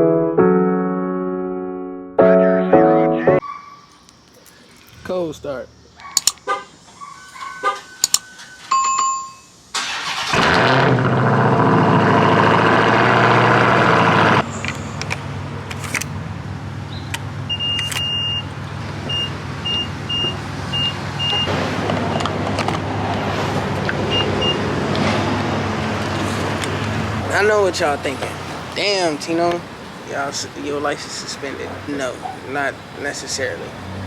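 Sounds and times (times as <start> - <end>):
car engine starting and idling: 9.7 - 29.9
dashboard beeps: 17.5 - 21.5, 24.1 - 24.6.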